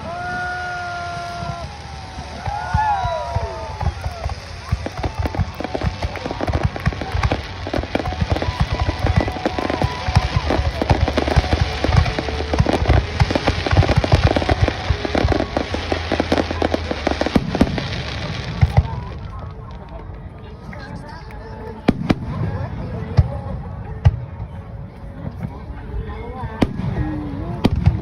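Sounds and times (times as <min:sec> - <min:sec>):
firework shells bursting: 0:02.4 - 0:18.8.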